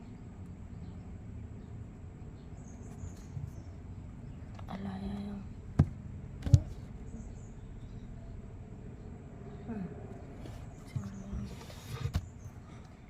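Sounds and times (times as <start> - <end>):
sharp knocks: 5.8 - 6.8.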